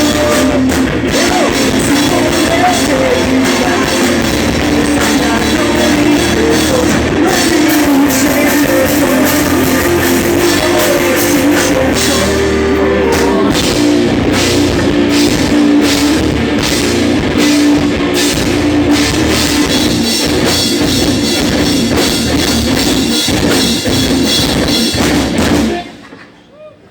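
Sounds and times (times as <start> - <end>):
drum kit beat: 0.0 - 26.0
pop punk band playing live: 0.0 - 26.2.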